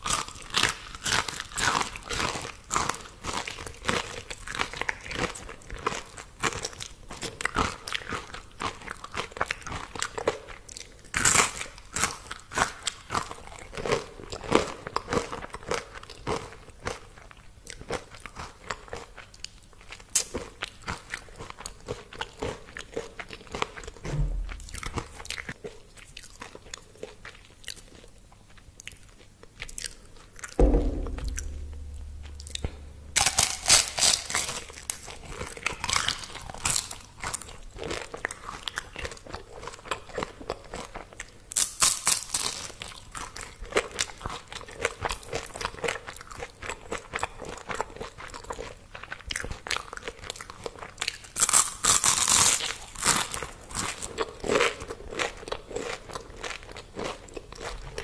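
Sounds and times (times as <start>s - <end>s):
chewing crispy fried food: 0.0s - 24.0s, 25.1s - 30.5s, 34.9s - 58.0s
dull thump: 24.1s - 25.1s, 30.6s - 33.3s.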